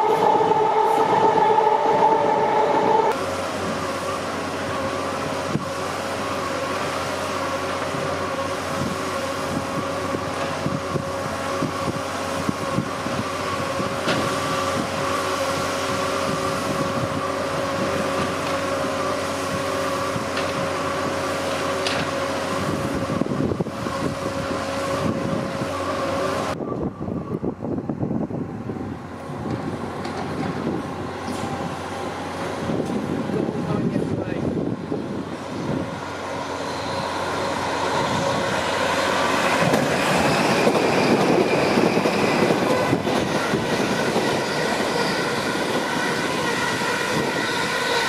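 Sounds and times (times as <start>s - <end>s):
electric train running: 29.0s - 48.0s.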